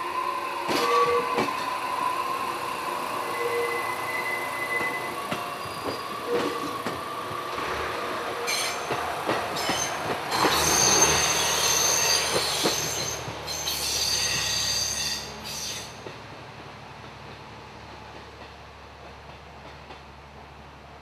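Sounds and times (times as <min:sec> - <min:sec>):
train wheels squealing: 0:00.4 - 0:07.1, 0:08.4 - 0:16.1.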